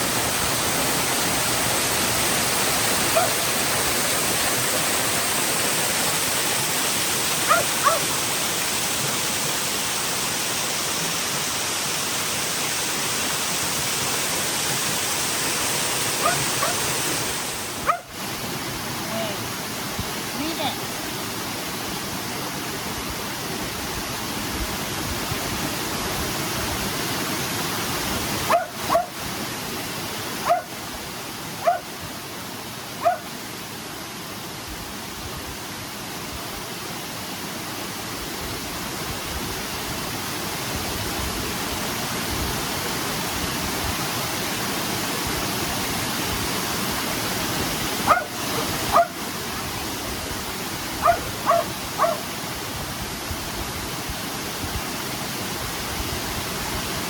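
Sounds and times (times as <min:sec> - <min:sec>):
waterfall rushing: 0:00.0 - 0:57.0
dog barking: 0:03.1 - 0:03.4, 0:07.5 - 0:08.2, 0:16.2 - 0:16.9, 0:17.8 - 0:18.1, 0:28.5 - 0:29.2, 0:30.4 - 0:30.7, 0:31.6 - 0:31.9, 0:33.0 - 0:33.3, 0:48.0 - 0:49.2, 0:51.0 - 0:52.3.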